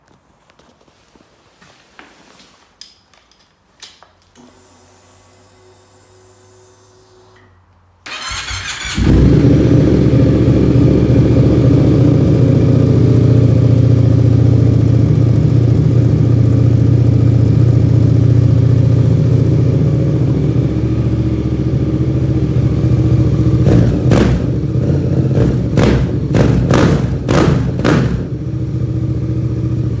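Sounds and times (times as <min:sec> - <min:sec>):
motorcycle starter cranking: 0:08.1 - 0:09.8
motorcycle engine revving: 0:08.1 - 0:30.0
motorcycle engine idling loudly: 0:08.7 - 0:30.0.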